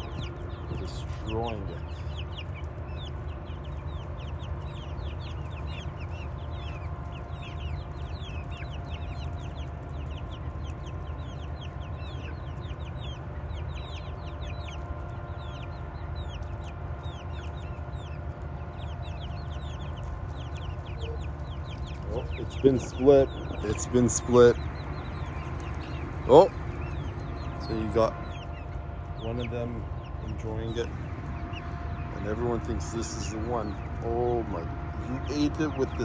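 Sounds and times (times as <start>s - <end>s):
chickens clucking: 0.0s - 36.0s
low rumble: 15.4s - 36.0s.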